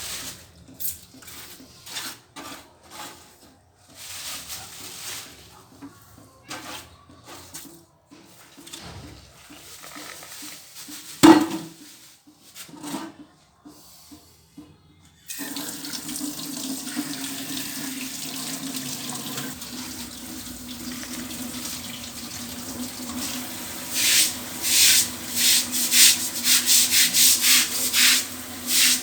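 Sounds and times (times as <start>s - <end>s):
water running from tap: 15.3s - 29.0s.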